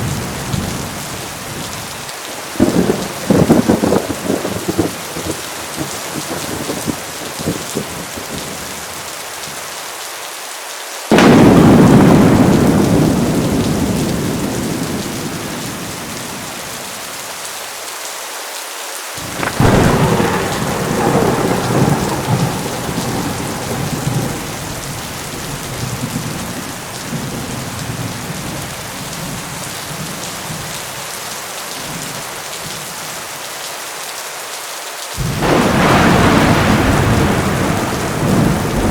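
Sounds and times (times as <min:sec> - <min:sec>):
thunder cracking and rumbling: 0:00.0 - 0:01.9, 0:02.5 - 0:08.6, 0:11.1 - 0:16.9, 0:19.2 - 0:30.8, 0:35.2 - 0:38.9
heavy rain falling: 0:00.0 - 0:38.9.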